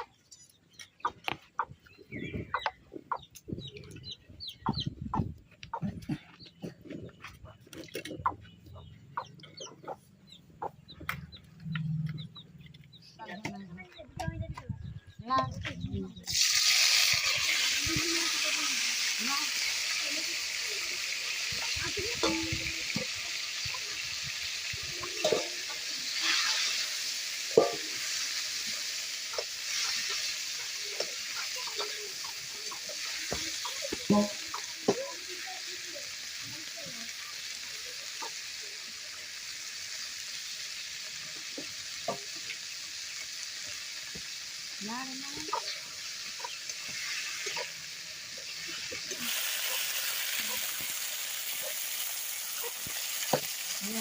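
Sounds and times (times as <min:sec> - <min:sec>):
food frying in hot oil: 0:16.2 - 0:54.0.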